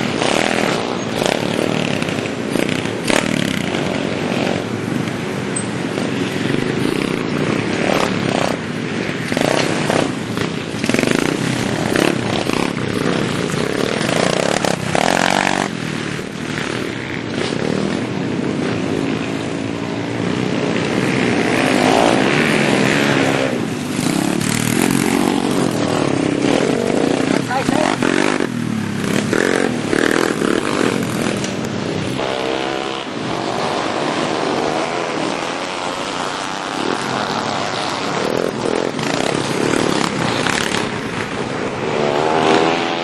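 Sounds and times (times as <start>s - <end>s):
minibike engines revving: 0.0s - 43.0s.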